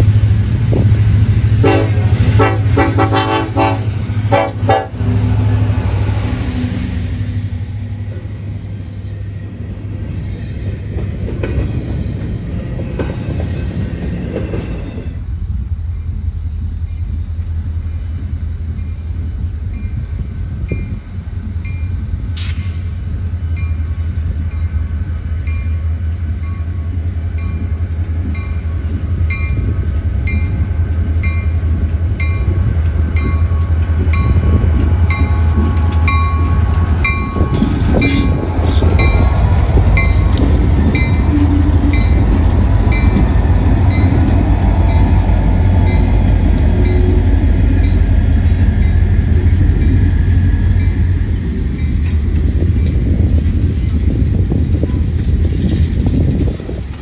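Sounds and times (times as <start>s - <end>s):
train rumbling past: 0.0s - 57.0s
crossing bell dinging: 33.2s - 39.4s, 40.0s - 44.3s, 45.8s - 50.1s.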